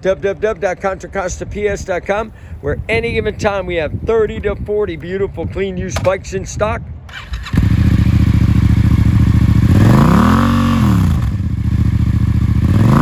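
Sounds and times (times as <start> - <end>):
motorcycle engine idling: 7.1 - 13.0.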